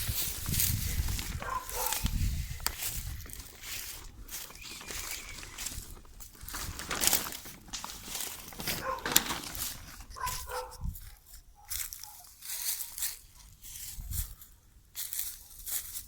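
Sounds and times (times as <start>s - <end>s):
rustling and crackling: 0.0s - 16.0s
dog barking: 1.4s - 2.1s, 8.7s - 9.3s, 10.2s - 10.9s, 11.6s - 12.4s.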